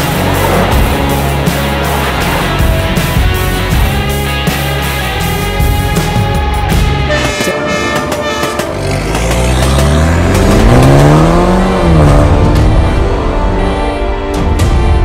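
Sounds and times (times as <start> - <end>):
car engine revving and passing: 0.0 - 4.7, 8.1 - 13.6
background music: 0.0 - 15.0.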